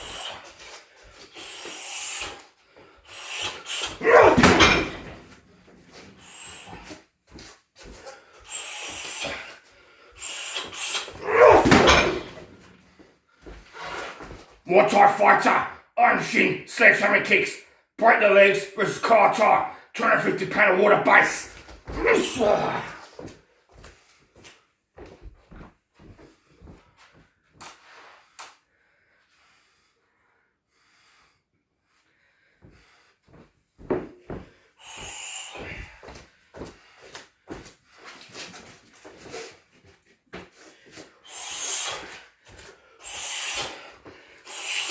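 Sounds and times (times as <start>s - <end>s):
person exhaling sharply: 1.4s - 2.4s, 5.9s - 7.0s, 8.4s - 9.6s, 10.2s - 12.5s, 34.8s - 36.1s, 41.3s - 42.2s, 43.0s - 44.9s
short hissing sounds: 8.5s - 9.4s, 10.2s - 11.2s, 34.8s - 35.7s, 41.3s - 42.2s, 43.0s - 43.9s, 44.5s - 44.9s.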